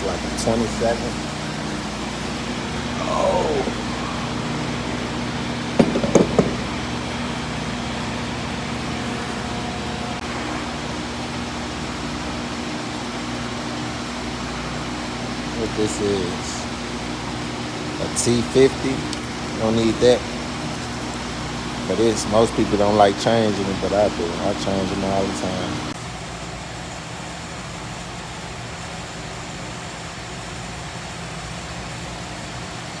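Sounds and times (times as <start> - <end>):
steady mechanical hum: 0.0 - 33.0
even hiss: 2.2 - 5.0.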